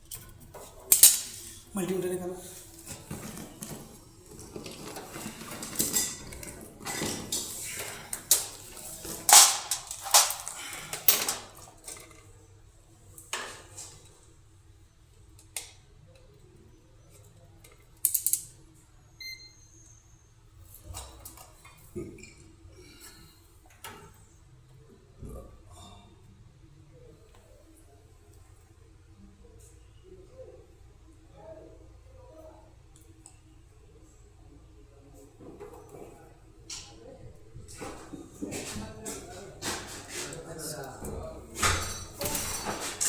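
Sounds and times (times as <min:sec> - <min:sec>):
metal tools clattering: 0:00.1 - 0:01.8, 0:02.5 - 0:12.2, 0:41.5 - 0:43.0.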